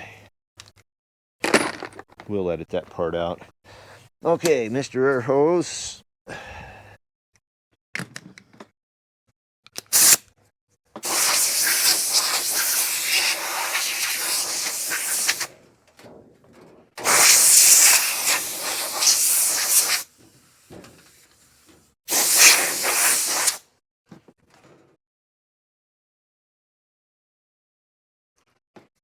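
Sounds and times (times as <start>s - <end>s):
compressed air hissing: 9.9s - 10.2s, 11.0s - 15.5s, 17.0s - 23.6s.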